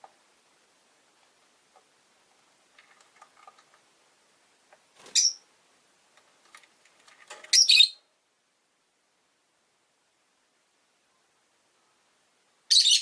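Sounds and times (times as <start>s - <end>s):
lovebird shrill call: 7.5s - 8.0s, 12.7s - 13.0s.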